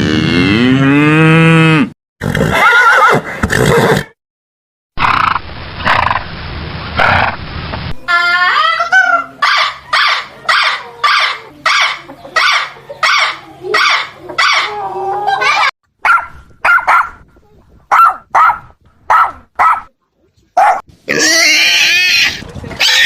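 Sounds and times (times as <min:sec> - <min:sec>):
animal barking yelps: 0:08.6 - 0:17.2, 0:17.9 - 0:19.9, 0:20.6 - 0:23.0.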